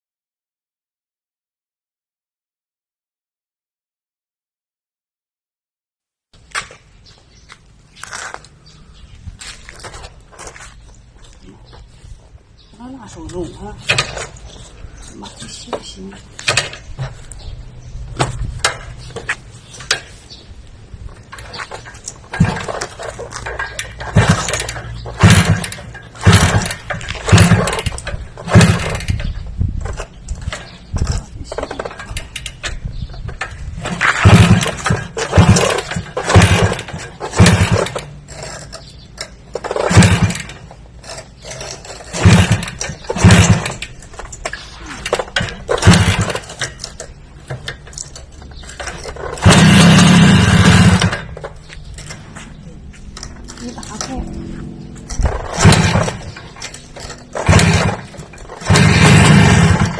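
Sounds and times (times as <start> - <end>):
small motor revving: 49.4 - 51.2, 57.3 - 59.9.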